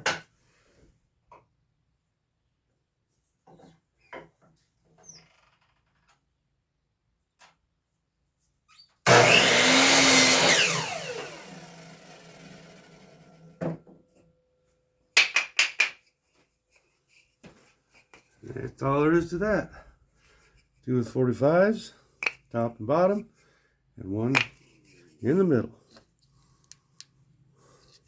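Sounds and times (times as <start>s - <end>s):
miter saw cutting wood: 9.1s - 13.6s
knocks of handling wood: 15.2s - 18.3s.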